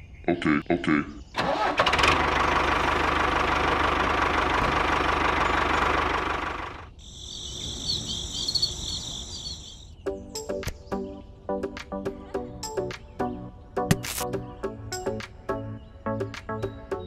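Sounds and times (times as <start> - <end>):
tractor engine knocking: 1.4 - 6.8
high chirping: 6.9 - 11.4
music: 10.0 - 17.0.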